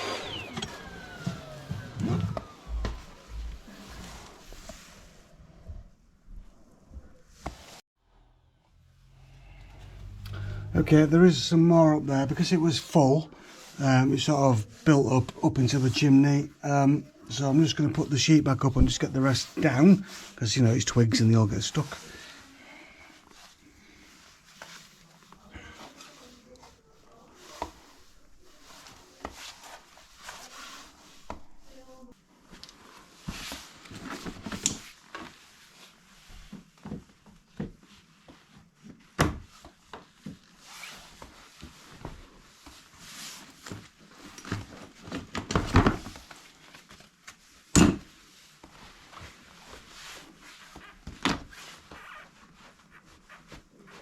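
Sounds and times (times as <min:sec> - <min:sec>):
fabric rustling: 0:23.1 - 0:45.2.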